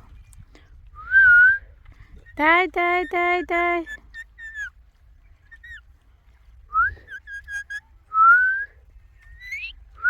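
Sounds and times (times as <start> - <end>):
parrot whistled calls: 4.1 - 4.8, 5.5 - 5.8, 7.0 - 7.9, 9.4 - 9.8.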